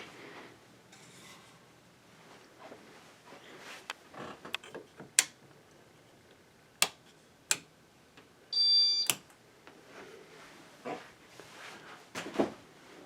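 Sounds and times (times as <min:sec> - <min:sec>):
sharp clicks: 0:06.8 - 0:07.7.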